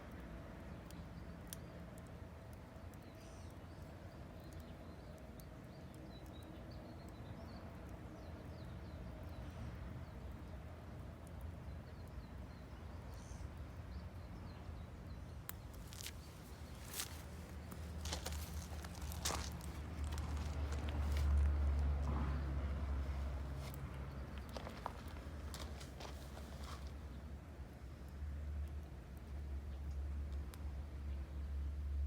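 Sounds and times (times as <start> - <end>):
wood fire crackling: 0.0 - 31.9
low outdoor rumble: 6.6 - 32.0.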